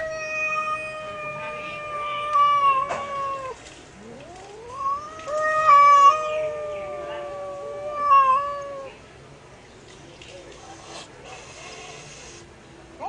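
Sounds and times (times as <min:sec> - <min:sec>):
cat yowling: 0:00.0 - 0:09.0.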